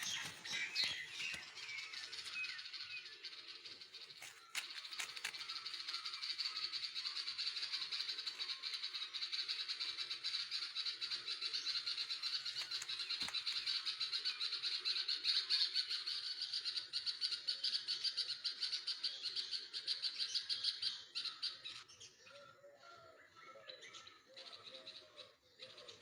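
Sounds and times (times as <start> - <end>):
baby birds chirping: 0.0 - 2.8.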